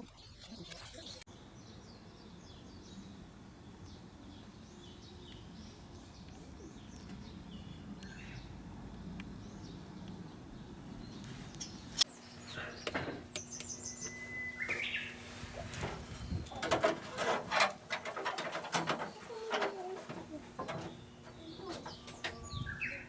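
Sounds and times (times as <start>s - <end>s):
birds chirping: 0.0s - 23.0s
low steady hum: 1.3s - 23.0s
sharp clicks and knocks: 15.8s - 22.5s.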